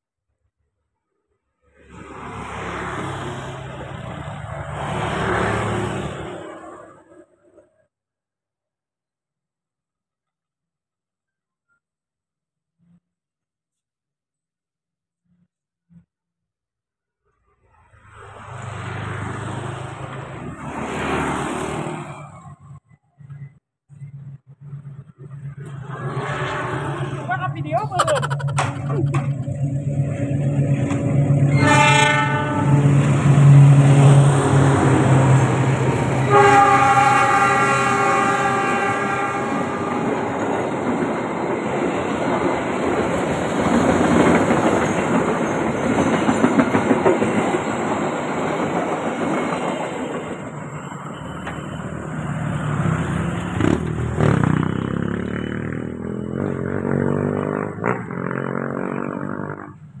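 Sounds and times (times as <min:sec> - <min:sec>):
train horn blasts: 0:31.4 - 0:33.6, 0:36.2 - 0:40.2
wheels on rails: 0:40.0 - 0:57.5.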